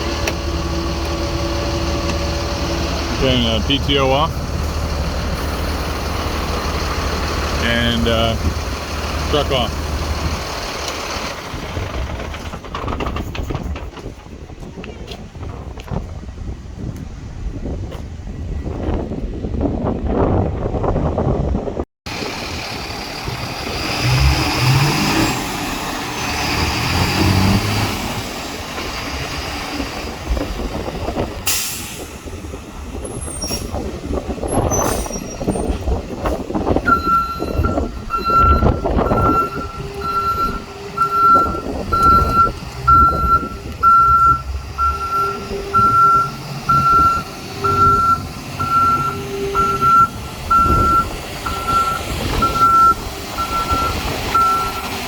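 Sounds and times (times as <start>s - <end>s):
truck engine running: 0.0s - 17.5s, 22.1s - 55.0s
backup alarm beeping: 36.9s - 54.9s.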